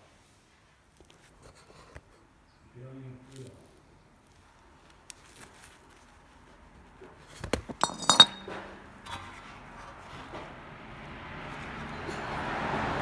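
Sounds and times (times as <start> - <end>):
metal objects clinking: 7.8 - 8.6.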